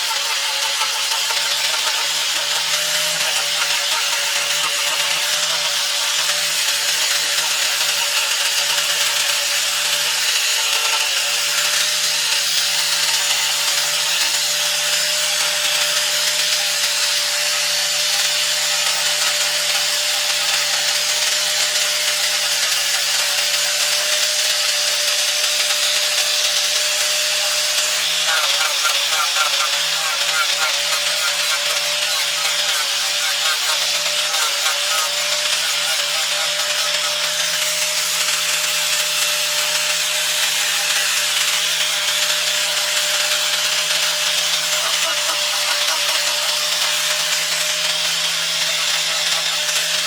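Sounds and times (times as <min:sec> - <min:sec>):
power tool sanding wood: 0:00.0 - 0:50.0.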